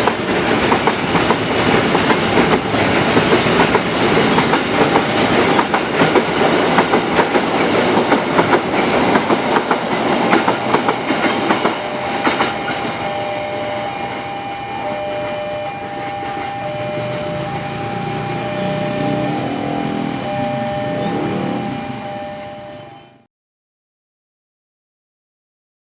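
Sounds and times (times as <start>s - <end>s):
train wheels clicking over rail joints: 0.0s - 18.8s
steady high tones: 0.0s - 23.2s.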